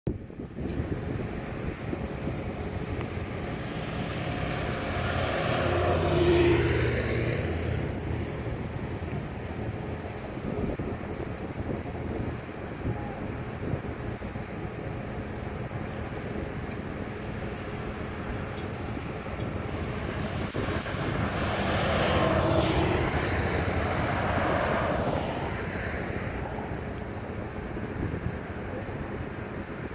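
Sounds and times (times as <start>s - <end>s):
vehicle driving past: 2.7s - 9.1s, 18.1s - 27.0s.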